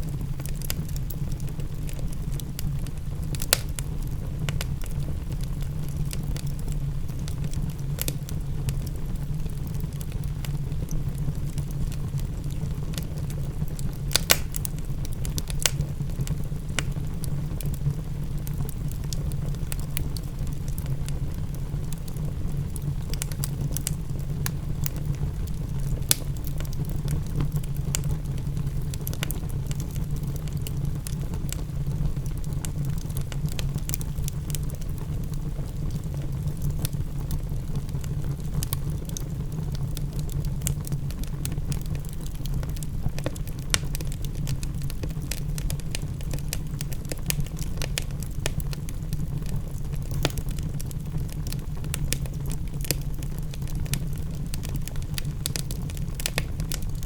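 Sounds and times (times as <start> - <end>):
fireplace crackling: 0.0 - 57.0
low fire rumble: 0.0 - 57.0
sharp fire pops: 3.3 - 4.9, 13.7 - 17.8, 23.1 - 28.2, 49.8 - 57.0.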